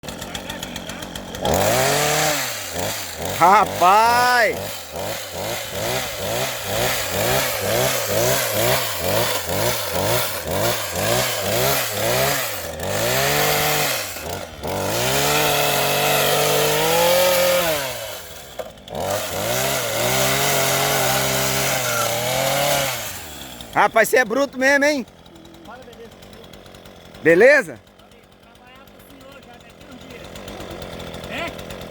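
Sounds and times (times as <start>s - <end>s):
chainsaw engine revving: 0.0s - 31.9s.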